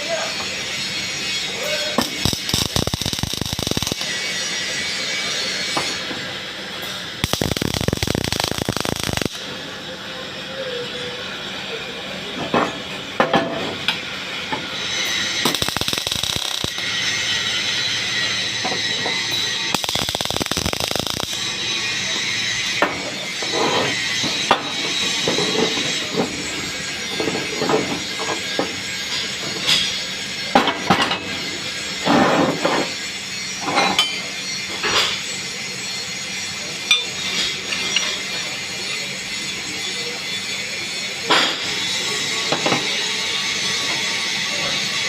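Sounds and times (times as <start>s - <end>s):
arc welding crackling: 1.6s - 4.8s, 6.8s - 9.5s, 14.8s - 22.8s.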